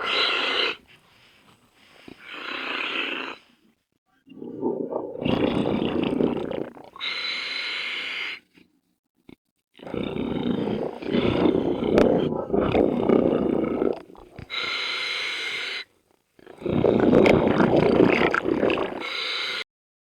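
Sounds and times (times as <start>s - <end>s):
bubbling exhale underwater: 4.3s - 7.1s, 9.8s - 14.8s, 16.4s - 19.4s.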